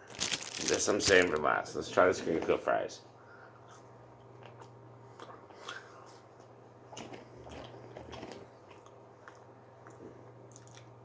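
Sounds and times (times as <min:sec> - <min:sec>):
person chewing crunchy fries: 0:00.0 - 0:01.3, 0:03.7 - 0:11.0
faint steady hum: 0:00.0 - 0:11.0.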